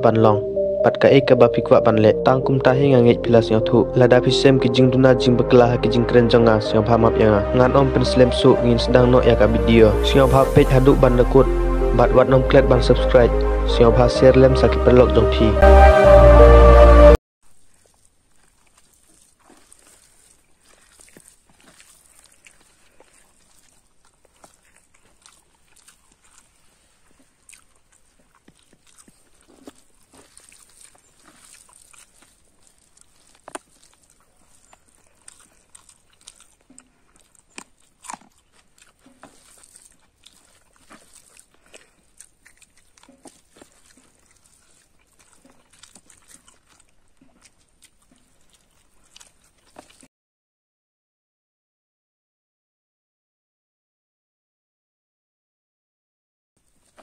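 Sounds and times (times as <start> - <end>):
person chewing with wet smacks: 17.5 - 50.1, 56.6 - 57.0.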